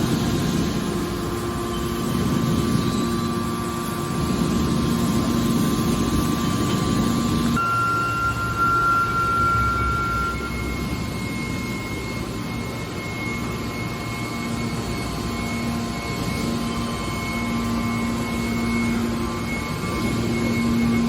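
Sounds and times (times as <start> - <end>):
thin high whine: 0.0 - 21.0
low hum: 7.1 - 14.2.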